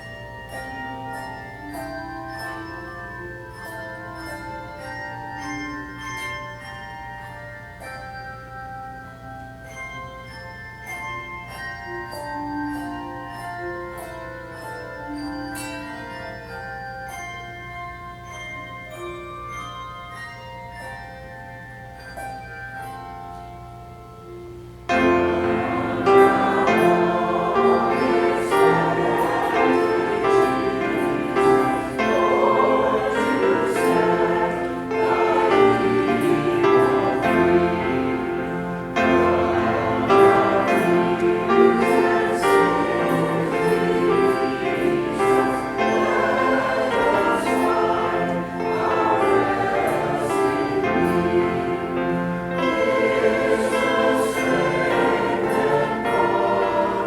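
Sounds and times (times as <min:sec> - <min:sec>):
church choir singing: 0:24.9 - 0:57.0.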